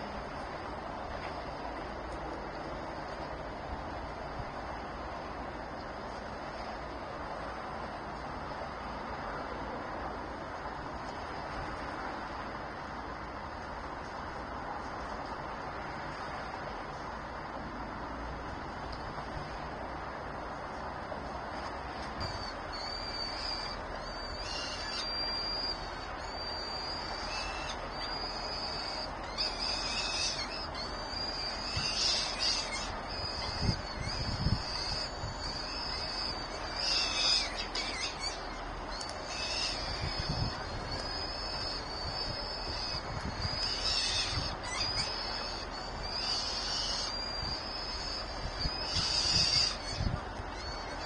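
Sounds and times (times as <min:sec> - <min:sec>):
chicks calling in nest: 0:22.3 - 0:51.0.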